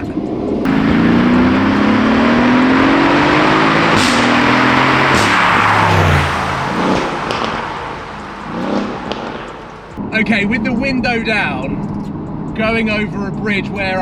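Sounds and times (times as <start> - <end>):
car engine revving hard: 0.7 - 10.0
exhaust cracking on upshifts: 0.7 - 10.0.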